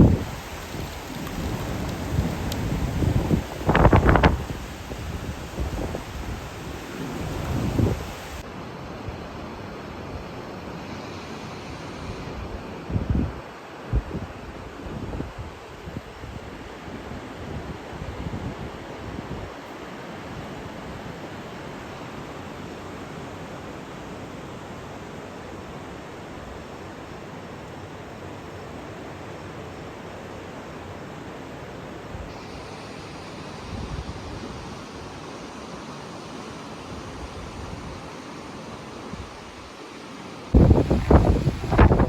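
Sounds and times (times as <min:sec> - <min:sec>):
storm wind rushing: 0:00.0 - 0:08.4, 0:40.5 - 0:42.0
wind buffeting microphone: 0:00.0 - 0:08.4, 0:40.5 - 0:42.0.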